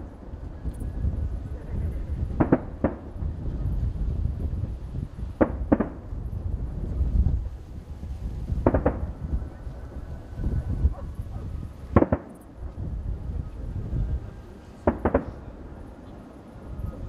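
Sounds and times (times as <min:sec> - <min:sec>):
distant fireworks rumble: 0:00.0 - 0:17.0
fireworks shells bursting: 0:11.8 - 0:12.6.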